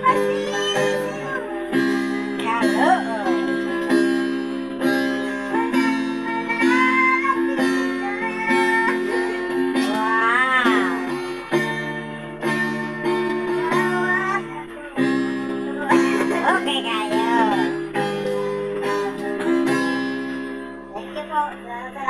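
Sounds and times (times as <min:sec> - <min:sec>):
acoustic guitar strumming: 0:00.0 - 0:22.0
person singing: 0:00.0 - 0:22.0.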